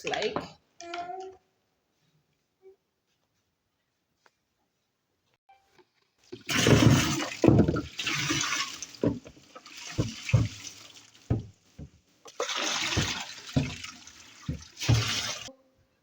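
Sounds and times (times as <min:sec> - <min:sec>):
water pouring and splashing: 0:06.2 - 0:15.5
knocks: 0:09.0 - 0:12.0, 0:12.9 - 0:15.4.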